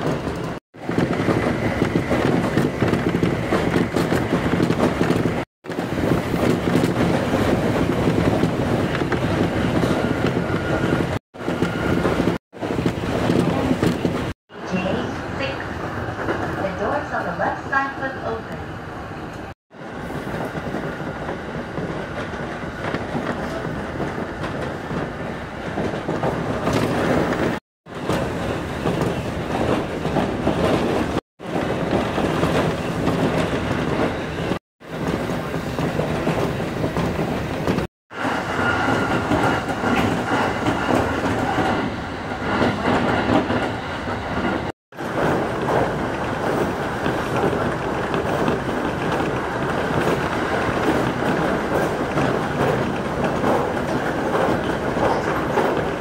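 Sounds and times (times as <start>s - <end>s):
train rumbling inside car: 0.0s - 18.6s, 19.3s - 56.0s.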